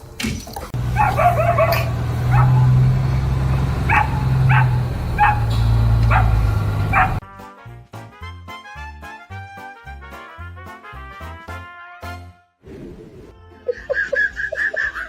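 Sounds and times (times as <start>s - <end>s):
dog barking: 0.9s - 2.8s, 3.8s - 5.5s, 6.1s - 7.2s.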